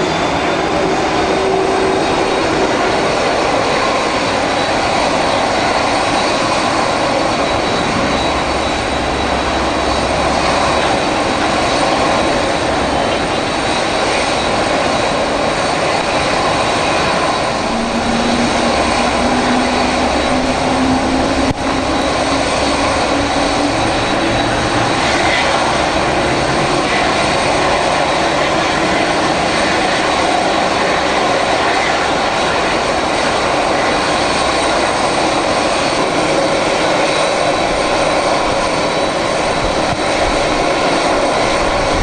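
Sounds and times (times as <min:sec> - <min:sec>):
low rising engine tone: 0:00.0 - 0:30.7
jet engines roaring: 0:00.0 - 0:42.0.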